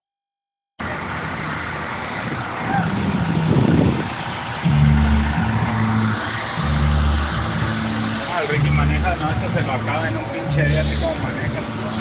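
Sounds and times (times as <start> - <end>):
vehicle and crowd noise: 0.8 - 12.0
deep bass notes: 2.8 - 12.0.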